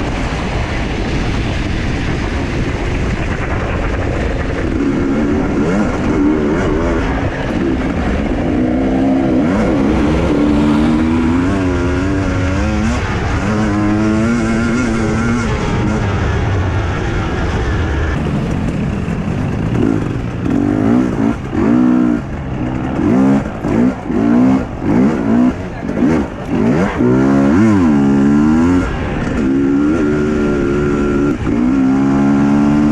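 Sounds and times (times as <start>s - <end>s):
motorcycle engine revving: 2.9s - 32.9s.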